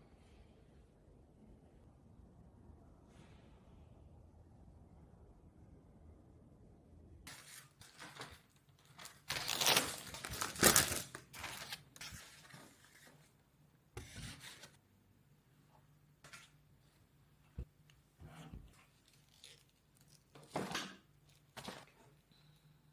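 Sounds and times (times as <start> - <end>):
rustling and scraping of handling: 7.3 - 14.8, 15.6 - 22.6.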